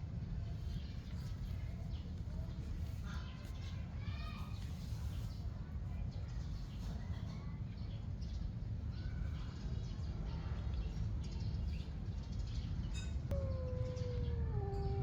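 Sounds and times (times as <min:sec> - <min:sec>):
faint bird chirps: 0:12.9 - 0:15.0
cat meowing: 0:13.3 - 0:15.0
steady low rumble: 0:13.3 - 0:15.0.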